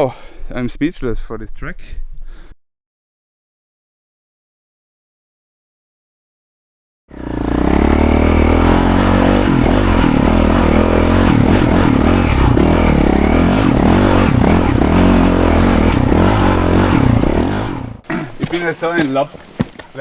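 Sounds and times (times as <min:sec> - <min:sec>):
dirt bike engine revving: 0:07.1 - 0:18.7.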